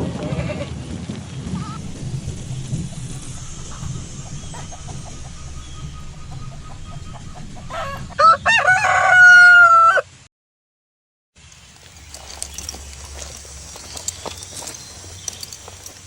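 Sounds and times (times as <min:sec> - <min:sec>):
rooster crowing: 0:01.8 - 0:10.1.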